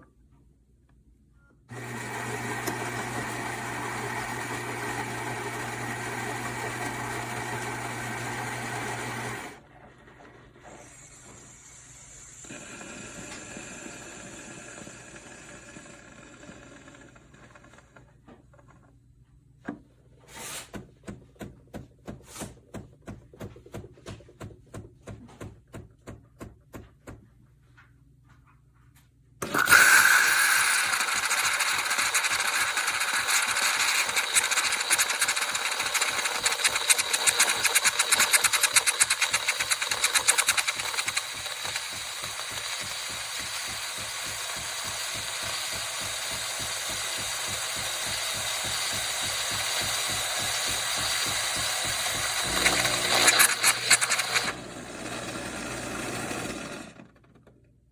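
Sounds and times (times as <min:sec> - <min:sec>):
espresso machine pulsing strokes: 0:01.7 - 0:18.0, 0:29.4 - 0:56.5
loud mechanical buzzing: 0:34.2 - 0:56.8.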